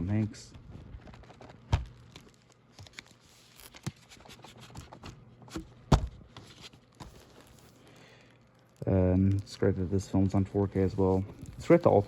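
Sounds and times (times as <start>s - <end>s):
plastic wrap tearing and crinkling: 0.8s - 4.7s, 6.5s - 9.8s.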